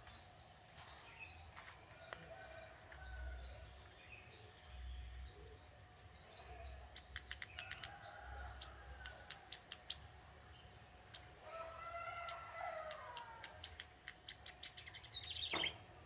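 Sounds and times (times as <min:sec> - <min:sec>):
bird clicking notes: 0:07.0 - 0:08.0, 0:09.0 - 0:10.0, 0:12.8 - 0:14.6.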